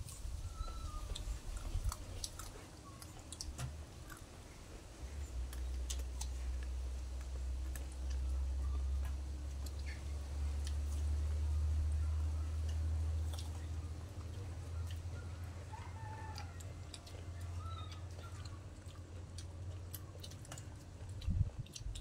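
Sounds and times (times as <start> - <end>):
close chewing: 0.0 - 22.0
steady low rumble: 0.0 - 22.0
sharp mouth clicks: 18.4 - 22.0.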